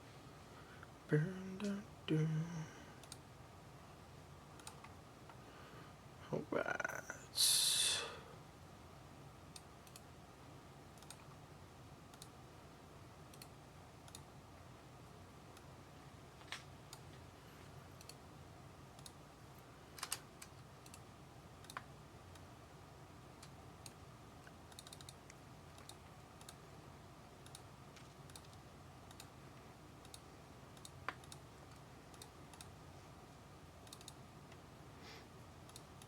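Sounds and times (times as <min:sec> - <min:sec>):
small clicks: 0:03.0 - 0:03.2, 0:04.6 - 0:05.4, 0:09.5 - 0:10.1, 0:11.0 - 0:11.4, 0:12.1 - 0:12.4, 0:13.3 - 0:14.3, 0:18.0 - 0:18.2, 0:19.0 - 0:22.5, 0:23.4 - 0:26.6, 0:27.4 - 0:29.4, 0:30.0 - 0:32.8, 0:33.8 - 0:34.7, 0:35.6 - 0:36.0.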